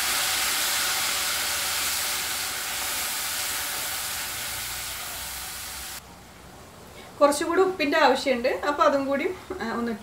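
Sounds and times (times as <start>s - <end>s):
food sizzling in hot oil: 0.0s - 6.0s.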